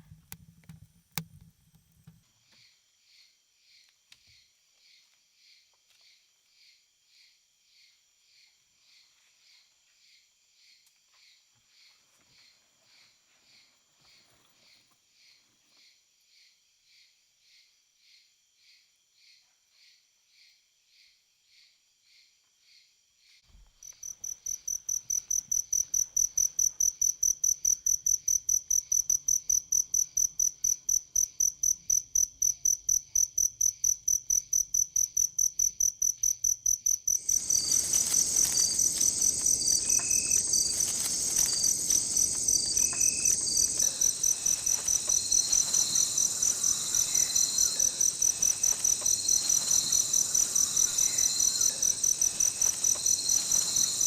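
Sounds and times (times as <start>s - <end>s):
chorus of insects: 23.8s - 54.0s
insect chirping: 23.8s - 54.0s.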